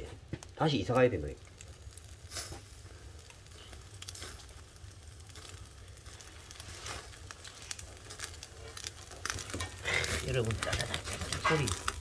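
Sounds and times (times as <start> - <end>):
fat and burning wood crackling: 0.0 - 12.0
pork sizzling over wood fire: 0.0 - 12.0.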